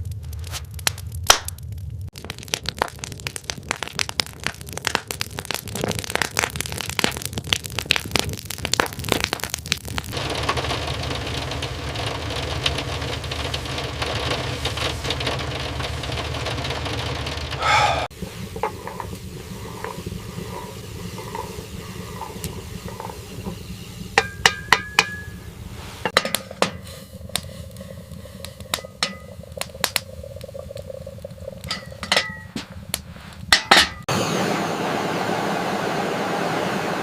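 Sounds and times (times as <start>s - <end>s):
hard objects knocking and clinking: 18.5s - 25.4s, 31.6s - 32.8s.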